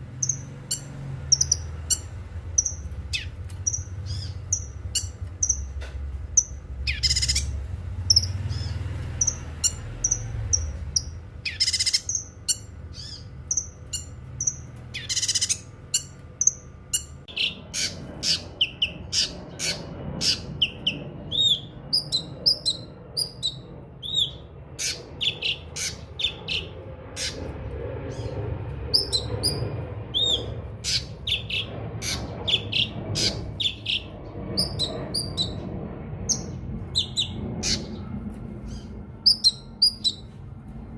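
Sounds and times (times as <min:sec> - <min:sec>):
low steady background rumble: 0:00.0 - 0:40.9
songbird chirping and whistling: 0:00.2 - 0:05.7, 0:06.4 - 0:19.3, 0:39.2 - 0:40.3.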